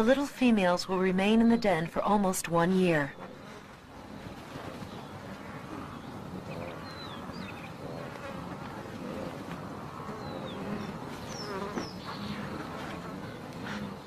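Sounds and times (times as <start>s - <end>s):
insects buzzing: 3.2s - 14.0s.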